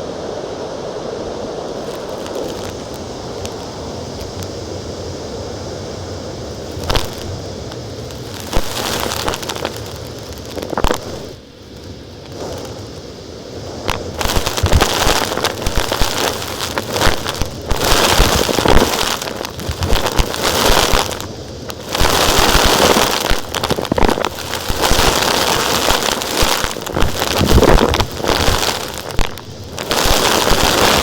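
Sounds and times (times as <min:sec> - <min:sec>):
stones rattling through hose: 0:13.9 - 0:31.0.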